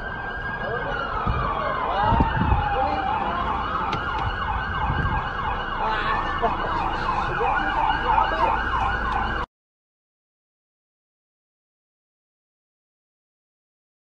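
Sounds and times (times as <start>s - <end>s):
emergency siren yelping: 0.0s - 9.5s
low road rumble: 0.0s - 9.5s.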